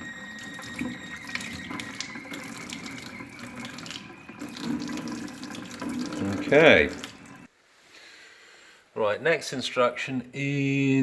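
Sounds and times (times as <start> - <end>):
tap water running into sink: 0.0 - 7.5.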